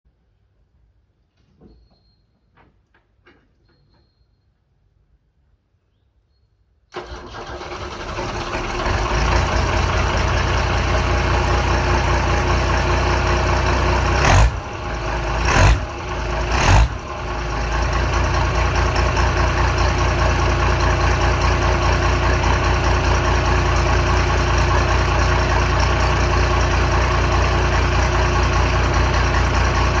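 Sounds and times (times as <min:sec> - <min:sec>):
diesel engine starting and running: 0:06.9 - 0:30.0
loud engine bursts: 0:06.9 - 0:30.0.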